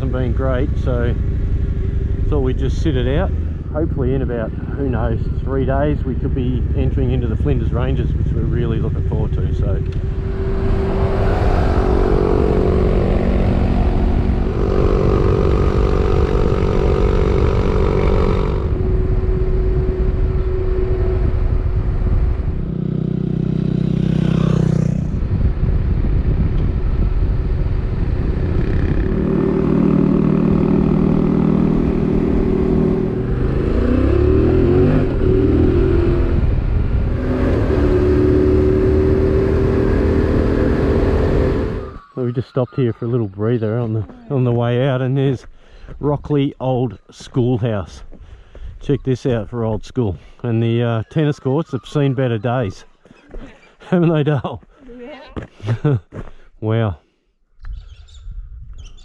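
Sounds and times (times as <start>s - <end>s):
motorcycle engine running: 0.0s - 42.0s
rushing wind noise: 0.8s - 42.1s, 57.7s - 59.0s.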